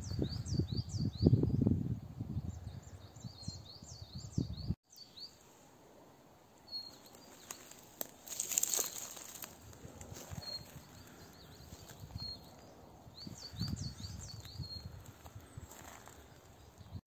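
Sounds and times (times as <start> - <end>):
small birds chirping: 0.0 - 5.5, 6.6 - 17.0
rustling: 6.9 - 10.8.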